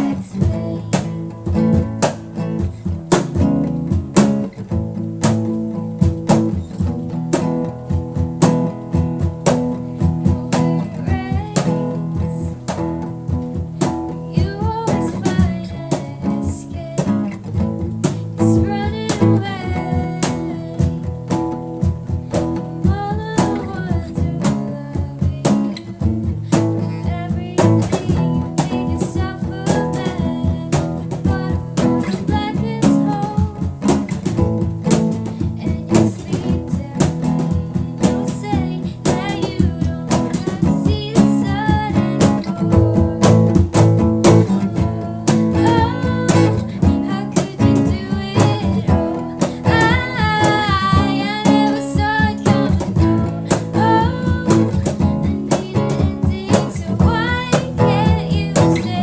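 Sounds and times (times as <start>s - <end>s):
beatboxed percussion: 0.0s - 59.0s
strummed guitars: 0.0s - 59.0s
woman singing: 0.0s - 59.0s.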